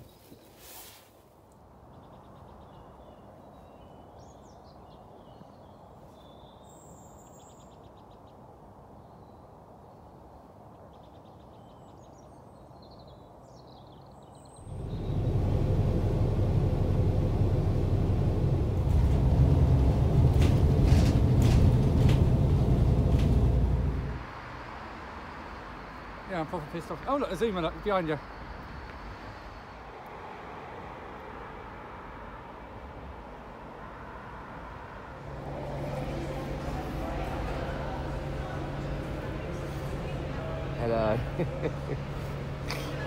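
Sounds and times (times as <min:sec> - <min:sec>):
loud steady low rumble: 0:14.6 - 0:24.3, 0:35.2 - 0:43.0.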